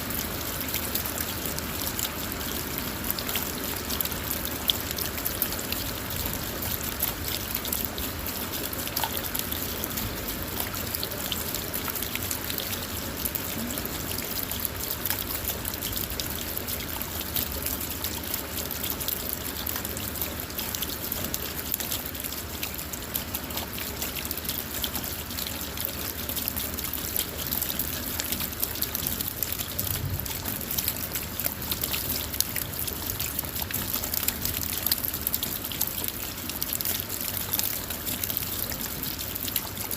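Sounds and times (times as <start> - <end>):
rain on a car: 0.0 - 39.9.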